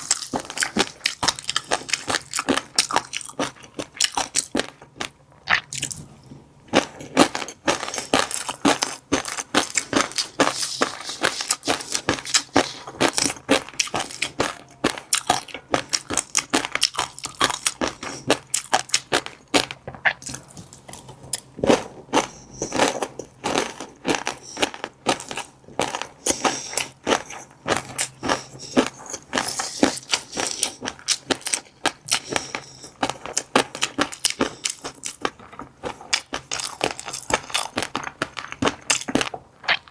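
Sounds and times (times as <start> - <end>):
chewing fish roe: 0.0 - 6.1, 6.7 - 39.9
eggs bursting crackling clicks: 20.0 - 20.5.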